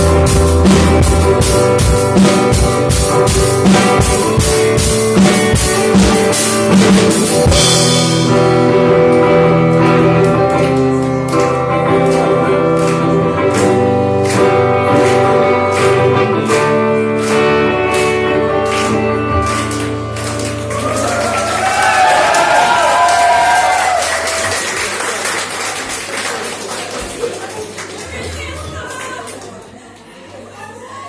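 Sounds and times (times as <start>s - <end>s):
fast drumming: 0.0s - 8.3s
held guitar chords ringing: 0.0s - 20.8s
live rock band playing: 0.0s - 24.5s.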